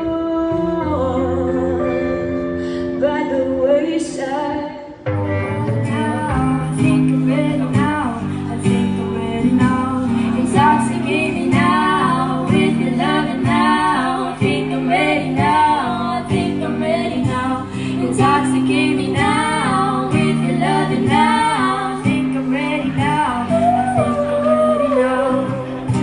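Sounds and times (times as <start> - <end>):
guitar: 0.0 - 26.0
woman singing: 0.0 - 26.0.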